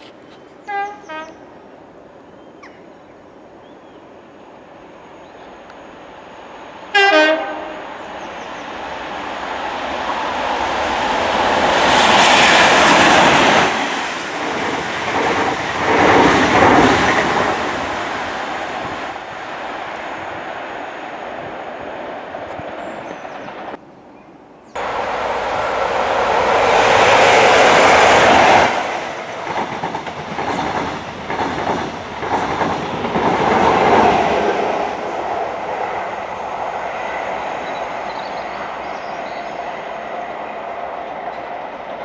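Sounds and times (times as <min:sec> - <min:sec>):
train horn: 0:00.6 - 0:01.4, 0:06.9 - 0:08.0.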